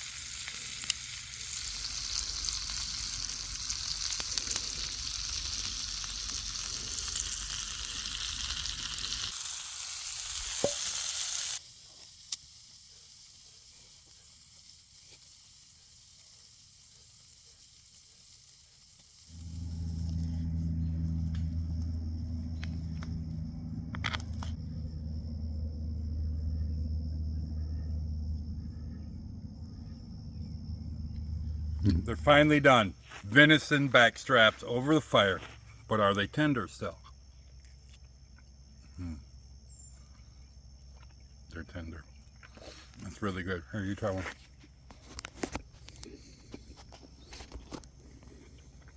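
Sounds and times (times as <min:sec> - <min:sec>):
meat sizzling over fire: 0:00.0 - 0:24.6
faint high steady tone: 0:19.3 - 0:33.4
steady low hum: 0:19.3 - 0:42.4.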